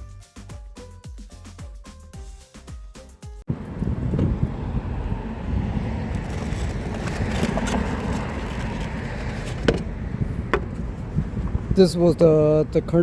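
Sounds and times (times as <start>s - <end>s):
road traffic rumble: 3.5s - 13.0s.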